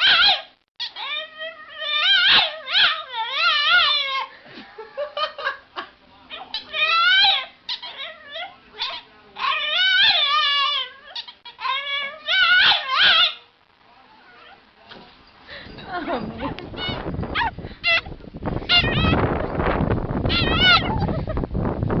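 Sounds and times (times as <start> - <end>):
dog whining and howling: 0.0 - 4.3, 6.4 - 13.4, 16.4 - 18.1, 18.7 - 19.5, 20.3 - 21.1.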